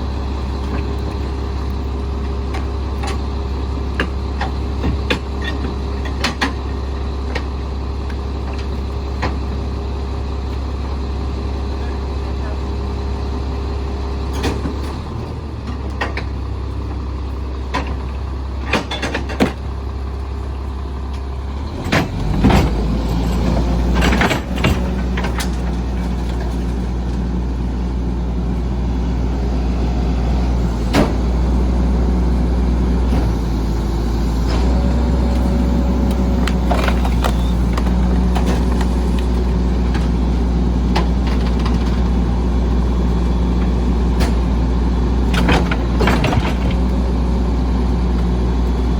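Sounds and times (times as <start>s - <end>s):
diesel truck engine running: 0.0s - 48.9s
sharp clanks and knocks: 21.8s - 26.8s.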